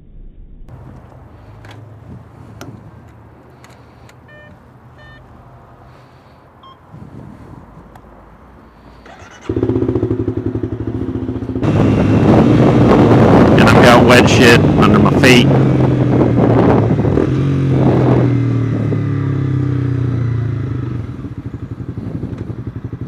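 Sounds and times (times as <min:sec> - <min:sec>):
electronic beeps: 0:04.3 - 0:05.2
motorcycle engine: 0:08.8 - 0:23.0.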